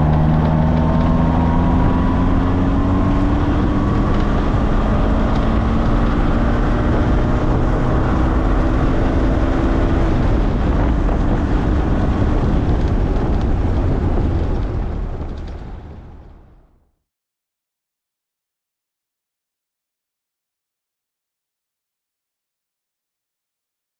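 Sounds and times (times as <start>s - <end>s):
sports car engine running: 0.0s - 16.4s
wind noise: 0.0s - 16.8s.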